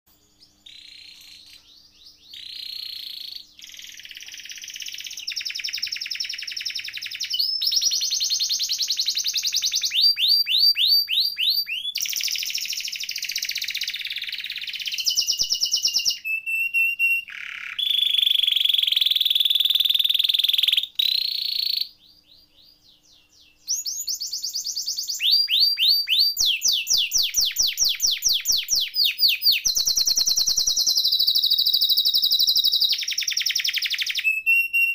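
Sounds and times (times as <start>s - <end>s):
canary singing trills: 0.1s - 34.9s.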